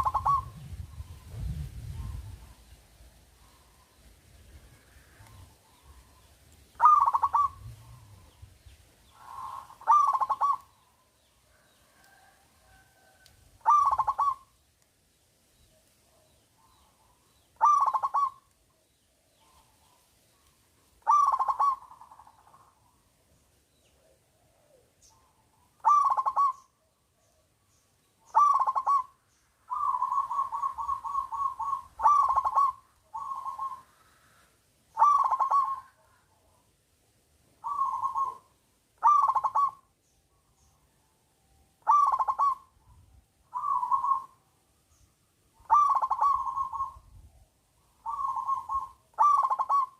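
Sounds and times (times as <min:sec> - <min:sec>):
dove cooing: 0:00.0 - 0:02.8, 0:04.5 - 0:08.5, 0:09.1 - 0:14.5, 0:16.2 - 0:18.6, 0:21.0 - 0:22.9, 0:23.9 - 0:26.8, 0:28.2 - 0:36.6, 0:37.6 - 0:39.9, 0:41.8 - 0:44.5, 0:45.6 - 0:47.2, 0:47.8 - 0:49.9.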